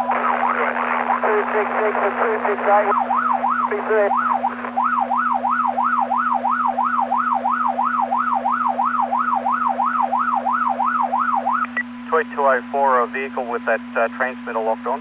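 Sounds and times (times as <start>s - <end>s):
police siren yelping over radio: 0.0s - 11.8s
steady low hum: 0.0s - 15.0s.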